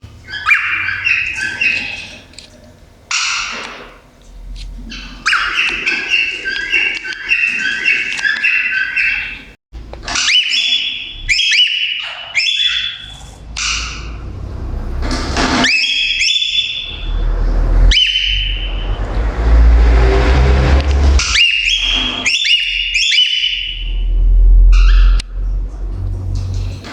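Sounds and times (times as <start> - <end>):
cockatiel chirping: 0.2 - 2.2, 4.9 - 9.5, 10.1 - 14.2, 21.2 - 24.0
cockatiel squawk: 0.2 - 2.3, 3.1 - 4.0, 4.9 - 9.5, 10.1 - 14.2, 21.2 - 23.9, 24.7 - 25.3
rising bird whistles: 15.6 - 19.0, 21.2 - 25.3.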